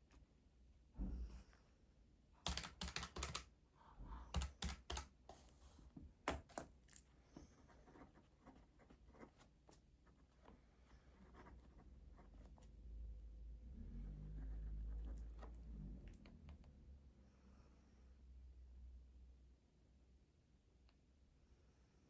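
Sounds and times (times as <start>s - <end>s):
keyboard typing: 2.4s - 3.5s, 4.3s - 5.5s.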